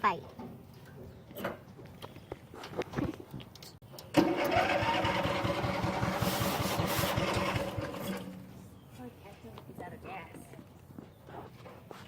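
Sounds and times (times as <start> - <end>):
lawn mower engine chugging: 4.1 - 8.5.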